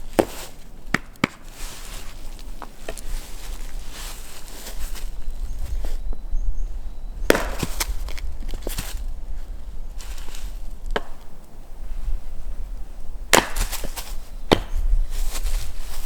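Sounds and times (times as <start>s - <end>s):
wood chopping knocks: 0.2s - 1.4s, 7.3s - 8.2s, 10.9s - 11.3s, 13.3s - 14.8s.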